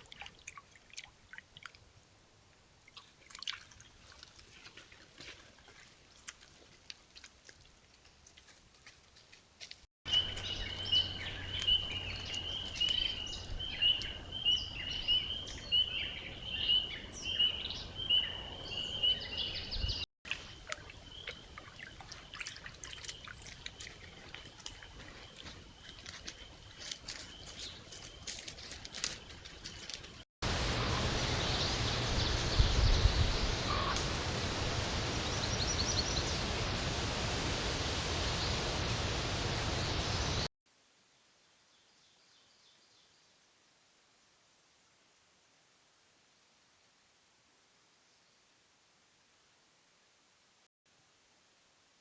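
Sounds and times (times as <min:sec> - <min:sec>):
water trickling and splashing: 0:00.0 - 0:14.1, 0:20.2 - 0:40.4.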